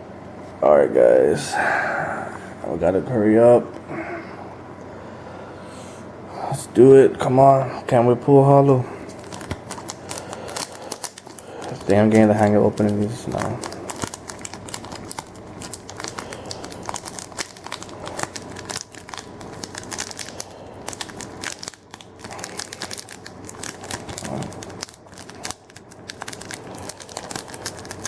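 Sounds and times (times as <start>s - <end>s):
wrapper crinkling and tearing: 9.1s - 28.0s.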